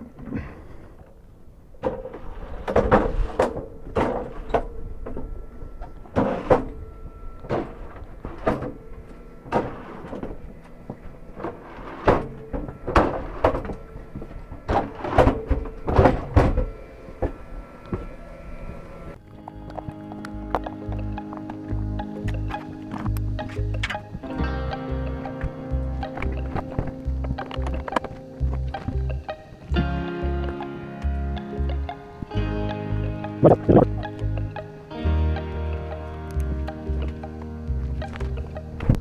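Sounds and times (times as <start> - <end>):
faint steady hum: 0.0 - 39.0
hard knocks and clunks: 7.4 - 17.4.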